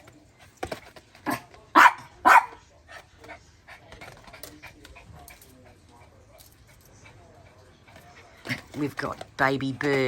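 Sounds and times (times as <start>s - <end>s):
dog barking: 1.3s - 2.6s.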